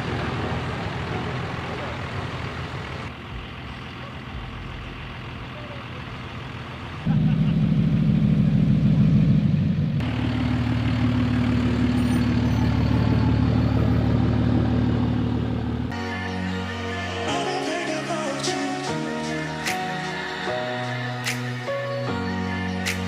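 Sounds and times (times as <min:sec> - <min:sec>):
truck engine running: 0:00.0 - 0:16.1.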